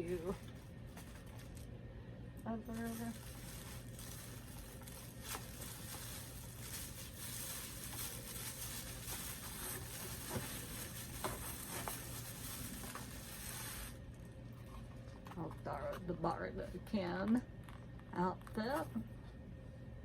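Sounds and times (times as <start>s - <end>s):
plastic rustling and crinkling: 0.0s - 1.7s, 2.7s - 15.9s.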